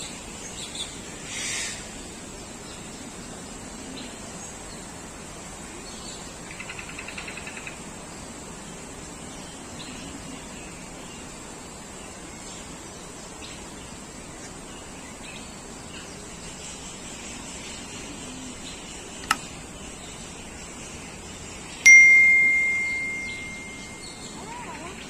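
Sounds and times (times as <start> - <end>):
aviary background: 0.0 - 25.0
sharp click: 19.2 - 19.5
faint bird chirps: 21.8 - 25.0
loud high ring: 21.9 - 24.4.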